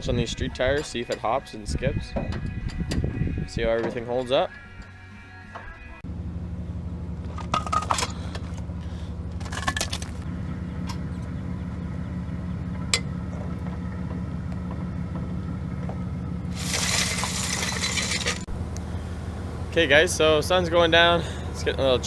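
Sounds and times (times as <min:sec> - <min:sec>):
low mechanical hum: 0:00.0 - 0:22.0
metal tools clinking and scraping: 0:00.6 - 0:01.4, 0:07.4 - 0:08.6, 0:16.6 - 0:18.5.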